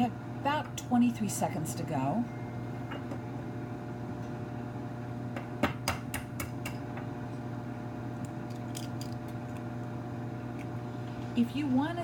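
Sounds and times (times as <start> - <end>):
microwave oven humming: 0.0 - 12.0
dishes clinking: 2.9 - 3.2.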